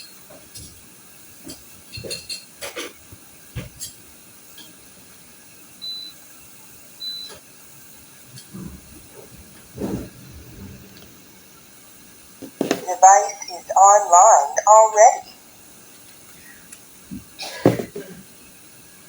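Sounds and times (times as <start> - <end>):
steady hiss: 7.8 - 19.0.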